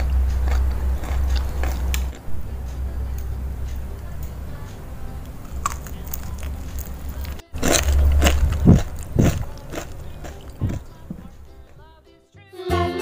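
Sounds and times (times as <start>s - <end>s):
chewing crispy fried chicken: 0.0s - 2.3s, 5.4s - 12.0s.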